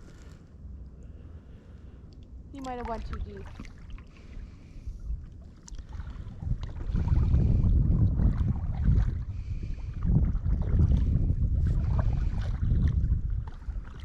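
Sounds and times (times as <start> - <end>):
kayak paddles in water: 2.6 - 14.0
wind buffeting microphone: 4.4 - 14.0.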